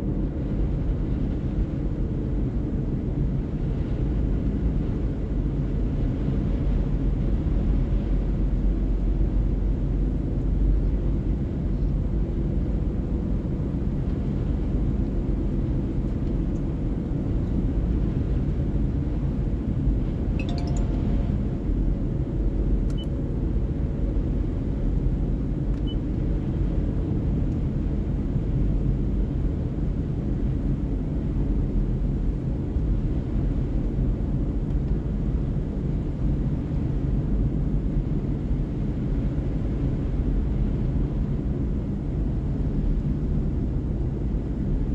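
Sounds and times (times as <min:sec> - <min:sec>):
car road and engine rumble: 0:00.0 - 0:44.9
faint high sound: 0:20.4 - 0:21.5
small click: 0:22.9 - 0:23.2, 0:25.7 - 0:26.0.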